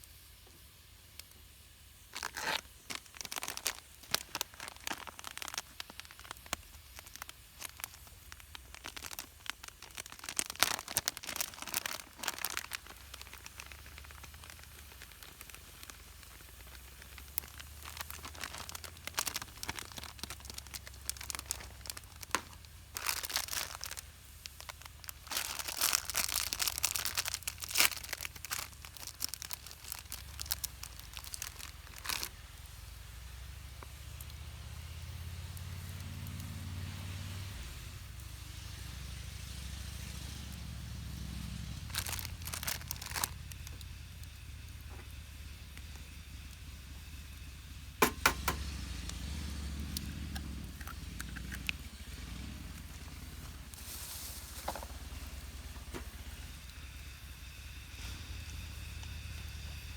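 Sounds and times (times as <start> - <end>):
crinkly material rustling: 2.1 - 32.7, 41.6 - 45.2, 49.9 - 56.4.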